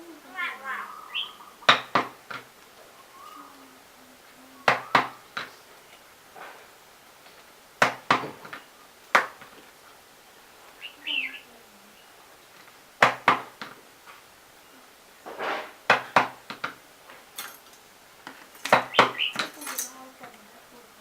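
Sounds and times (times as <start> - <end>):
sharp hard clicks: 4.6 - 9.7, 12.5 - 14.3.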